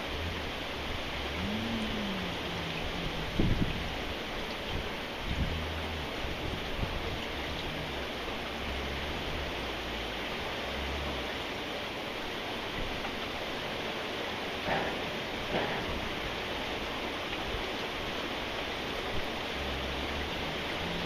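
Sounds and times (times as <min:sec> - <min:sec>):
low rumble: 0:00.0 - 0:10.7
steady rain: 0:00.0 - 0:21.0.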